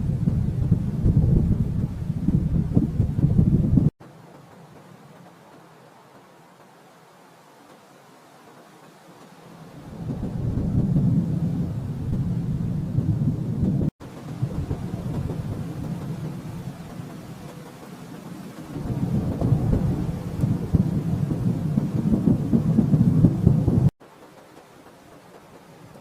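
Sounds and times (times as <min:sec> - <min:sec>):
rolling thunder: 0:00.0 - 0:03.9, 0:09.7 - 0:23.9.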